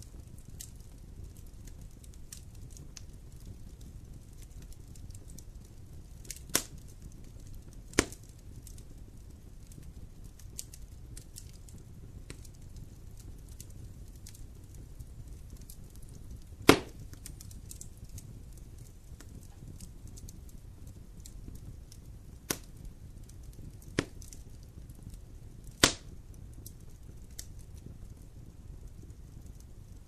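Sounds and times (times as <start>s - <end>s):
sharp pops of burning wood: 0.0s - 28.3s
campfire crackling: 0.0s - 30.0s.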